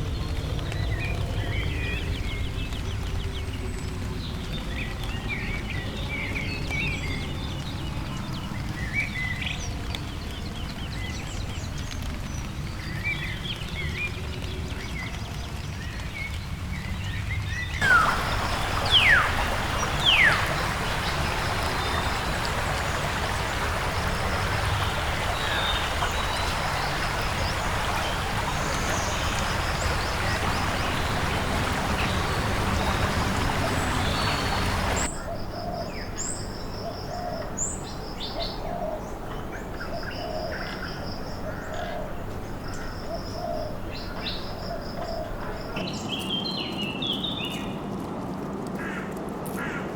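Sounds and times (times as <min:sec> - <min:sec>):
dense steady hiss: 0:17.8 - 0:35.1.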